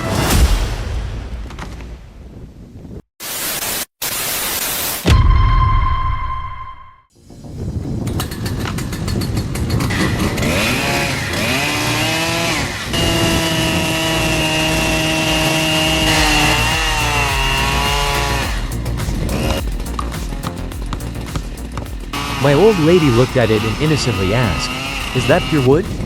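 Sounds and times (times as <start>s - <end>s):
chainsaw engine revving: 8.7s - 20.1s, 21.0s - 26.0s.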